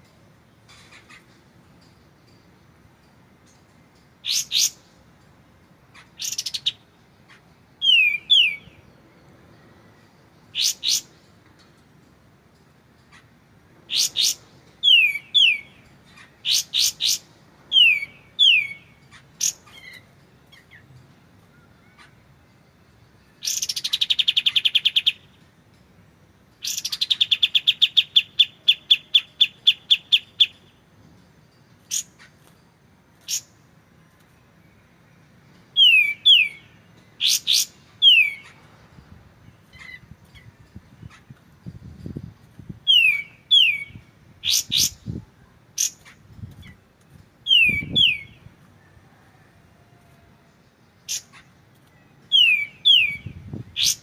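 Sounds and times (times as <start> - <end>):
sharp high bird chirps: 5.9 - 9.7, 10.4 - 11.4, 13.0 - 20.9, 21.6 - 25.4, 26.6 - 33.6, 35.7 - 41.4, 42.8 - 45.2, 47.4 - 48.5, 51.0 - 54.0.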